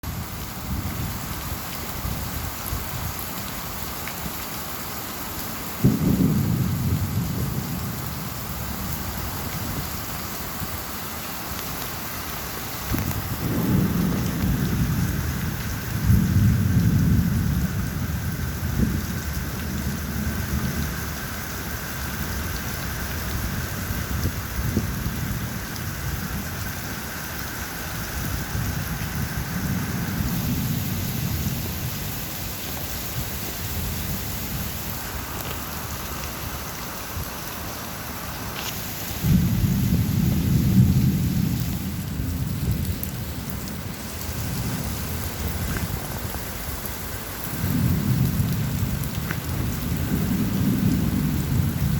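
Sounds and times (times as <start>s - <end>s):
steady rain falling: 0.0s - 51.9s
low rolling thunder: 5.8s - 10.1s, 12.8s - 32.5s, 39.2s - 51.9s.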